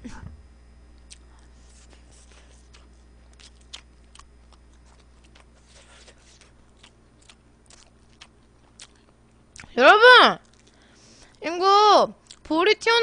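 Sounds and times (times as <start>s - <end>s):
low electrical hum: 0.0s - 13.0s
chewing mouth clicks and smacks: 1.0s - 1.3s, 1.9s - 9.8s, 10.4s - 10.8s.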